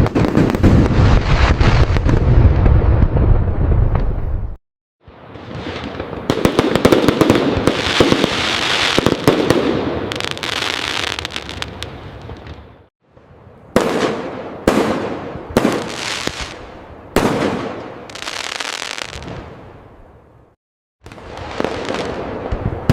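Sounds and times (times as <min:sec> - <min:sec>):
fireworks crackling barrage: 0:00.0 - 0:12.9, 0:13.6 - 0:19.7, 0:21.0 - 0:22.9
sharp aerial firework bursts: 0:05.6 - 0:11.9.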